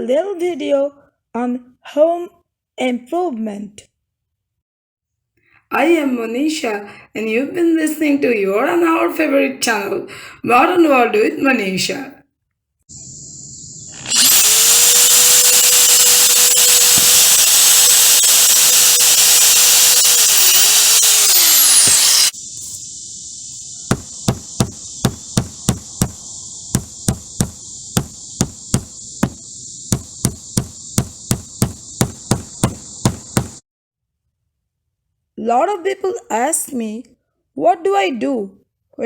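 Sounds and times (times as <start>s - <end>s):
power tool whining: 12.9s - 22.8s, 23.6s - 33.6s
hammer blows on roof: 23.9s - 33.6s.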